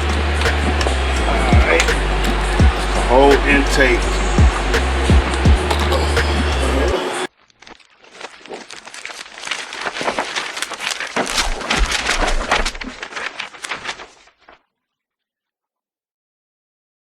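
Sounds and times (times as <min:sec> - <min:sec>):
heavy thumps: 0:00.0 - 0:06.6.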